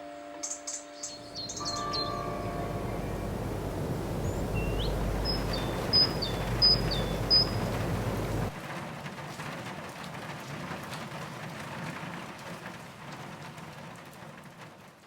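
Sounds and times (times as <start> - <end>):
rain falling: 1.2 - 14.5
low rumble: 1.3 - 8.6.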